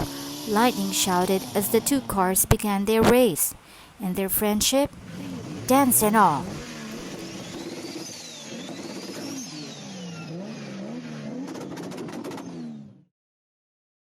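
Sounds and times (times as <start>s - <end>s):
race car engines revving: 0.0s - 13.1s
fast run of clicks: 6.6s - 9.8s.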